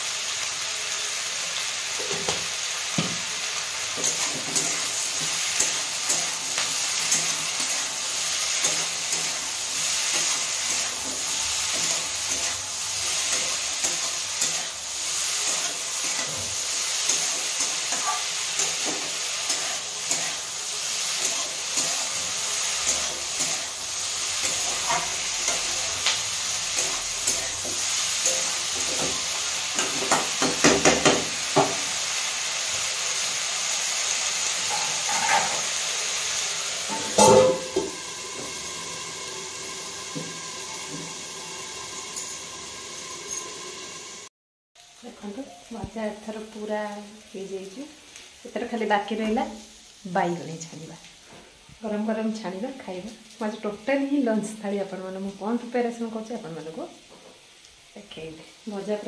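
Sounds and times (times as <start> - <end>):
vegetables sizzling in oil: 0.0 - 59.0
spatula scraping metal pan: 34.6 - 35.7.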